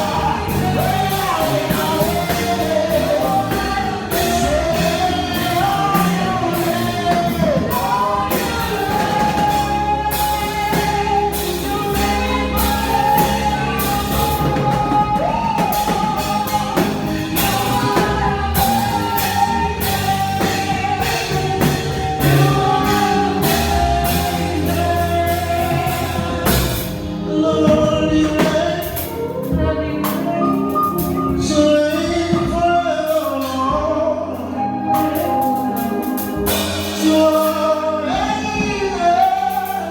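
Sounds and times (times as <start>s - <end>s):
bass: 0.0s - 39.9s
gospel band playing: 0.0s - 39.9s
person singing: 0.0s - 39.9s
steady drum beat: 0.0s - 39.9s.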